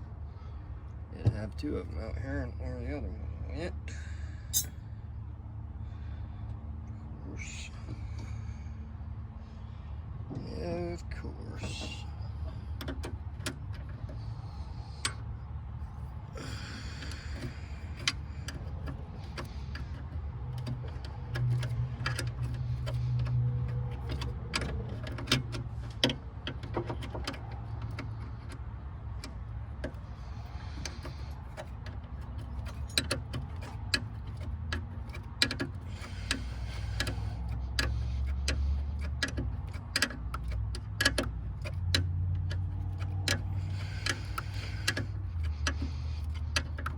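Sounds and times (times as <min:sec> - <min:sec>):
metal taps of tools: 0:04.5 - 0:04.8, 0:30.6 - 0:46.9
ratchet wrench clicking: 0:04.5 - 0:04.8, 0:16.4 - 0:46.9.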